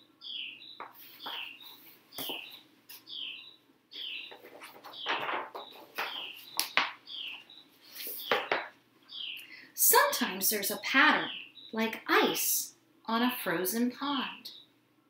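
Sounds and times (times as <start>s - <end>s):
small bird chirping: 0.2s - 9.6s, 11.2s - 11.8s.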